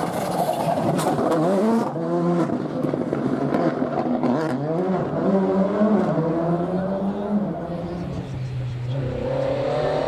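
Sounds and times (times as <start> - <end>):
car engine revving: 4.2 - 10.0.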